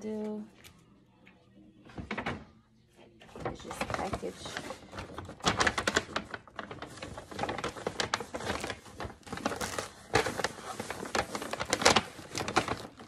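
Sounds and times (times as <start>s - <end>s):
bag rustling and crackling: 3.4s - 13.0s.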